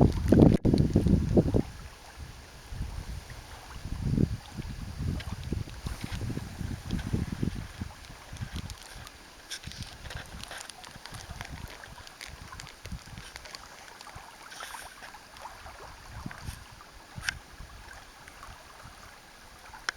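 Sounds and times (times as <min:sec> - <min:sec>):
campfire crackling and popping: 0:00.0 - 0:01.6, 0:05.0 - 0:15.5.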